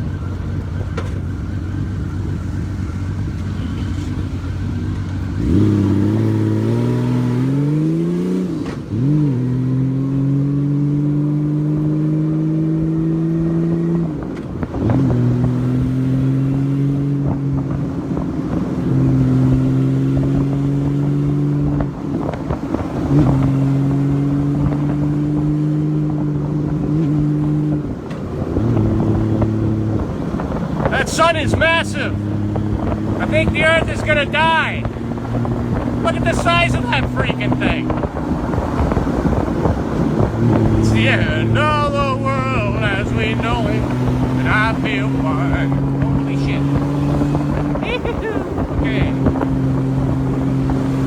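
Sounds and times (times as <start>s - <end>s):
motorcycle engine: 0.0s - 51.0s.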